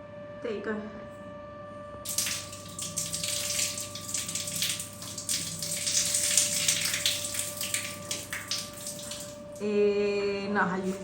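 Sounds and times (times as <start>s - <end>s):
shower head spraying water: 2.1s - 9.6s.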